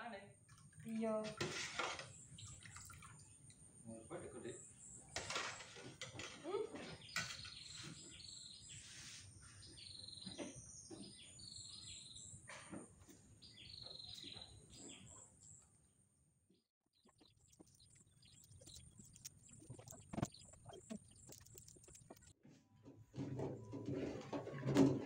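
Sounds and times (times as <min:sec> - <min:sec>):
small birds chirping: 0:02.0 - 0:05.2, 0:06.4 - 0:15.8, 0:16.9 - 0:22.4.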